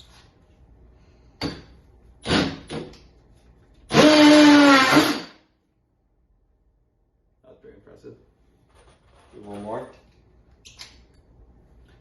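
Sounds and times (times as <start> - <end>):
cordless drill driving a screw: 2.2 - 2.8, 3.9 - 5.3.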